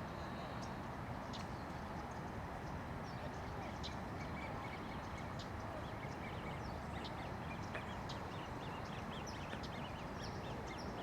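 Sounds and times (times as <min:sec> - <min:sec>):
small birds chirping: 0:00.5 - 0:11.0.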